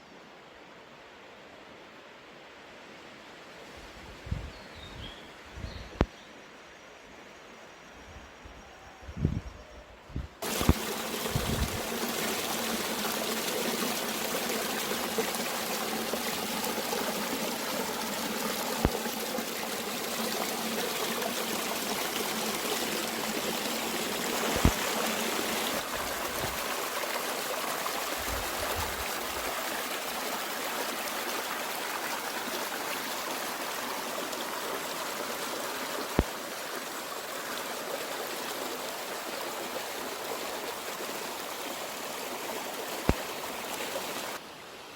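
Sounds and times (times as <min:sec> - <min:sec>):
mountain stream flowing: 0:10.4 - 0:44.9.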